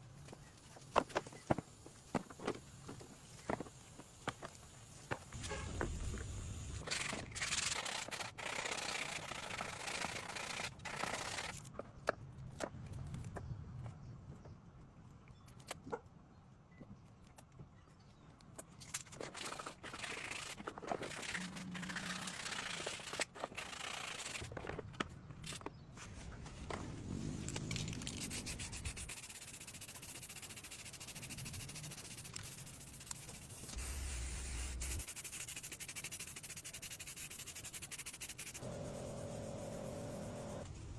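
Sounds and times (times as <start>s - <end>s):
scrubbing hiss: 27.2s - 40.6s.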